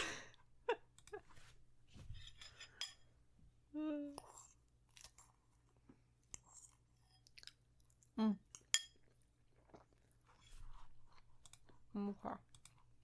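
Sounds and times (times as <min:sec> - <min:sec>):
person humming: 0:03.7 - 0:04.2
chewing food: 0:04.2 - 0:13.0.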